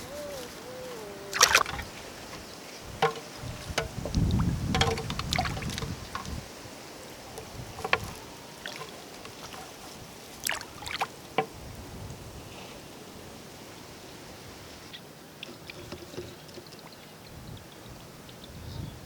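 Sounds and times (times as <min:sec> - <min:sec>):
water splashing and sloshing: 0:00.8 - 0:12.1.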